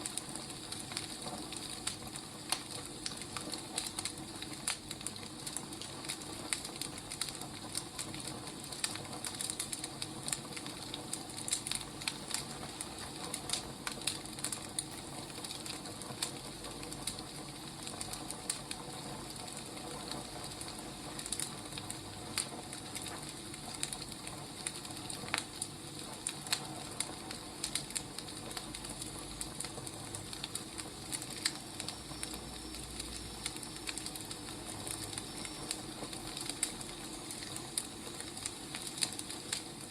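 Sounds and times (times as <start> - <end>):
firewood crackling and popping: 0.0 - 39.9
wood fire hissing: 0.0 - 39.9.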